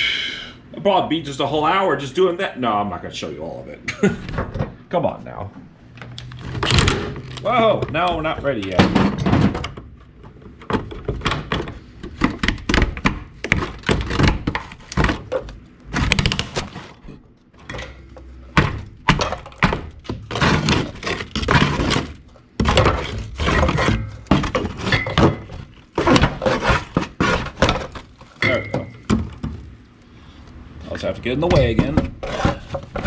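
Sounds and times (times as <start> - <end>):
tools and metal parts clanking: 6.0 - 12.8, 13.4 - 29.6, 31.4 - 33.0.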